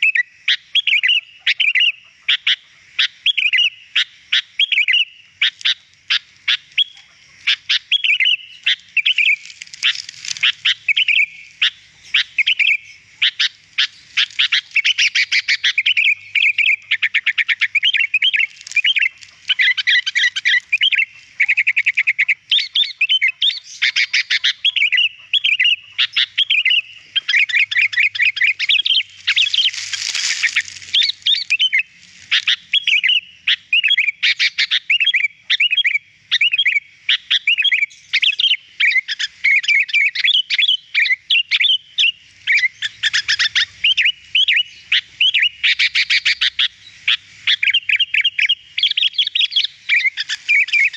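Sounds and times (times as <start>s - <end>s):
bird singing chirps: 0.0s - 50.9s
harsh scratchy bird call: 4.6s - 36.8s, 37.4s - 50.9s.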